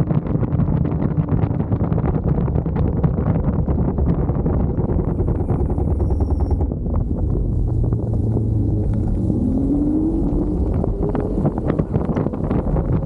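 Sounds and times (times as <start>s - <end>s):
low rumble with knocks: 0.0s - 13.0s
wind buffeting microphone: 0.0s - 13.0s.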